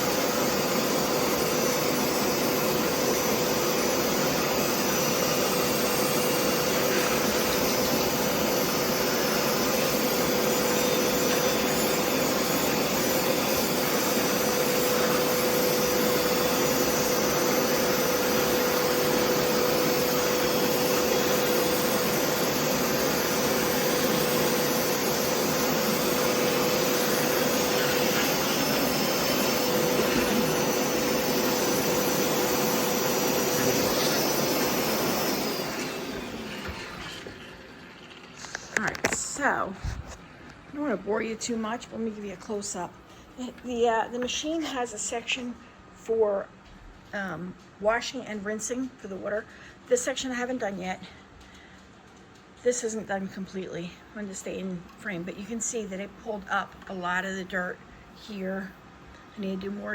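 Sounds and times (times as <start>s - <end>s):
carpet cleaner motor whining: 0.0s - 42.7s.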